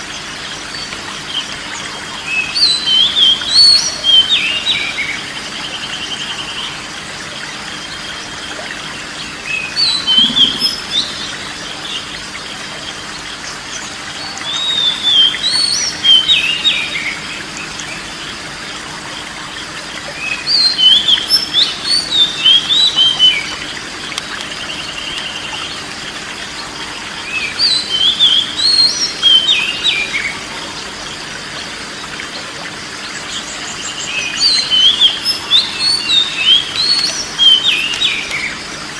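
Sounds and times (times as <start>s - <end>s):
bird whistling song: 2.2s - 6.7s, 9.4s - 12.0s, 14.2s - 17.2s, 20.2s - 25.8s, 27.2s - 30.4s, 33.4s - 38.6s.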